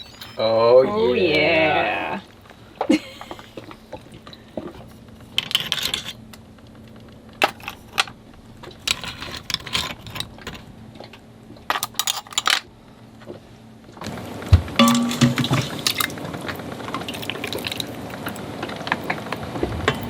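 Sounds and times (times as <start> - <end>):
dishes and utensils clinking: 0.0 - 0.8, 14.8 - 16.2
faint steady hum: 0.0 - 20.0.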